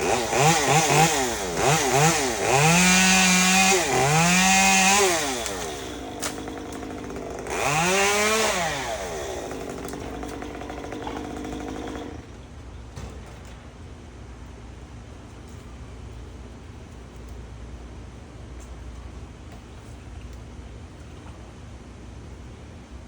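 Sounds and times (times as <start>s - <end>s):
chainsaw engine revving: 0.0s - 12.3s.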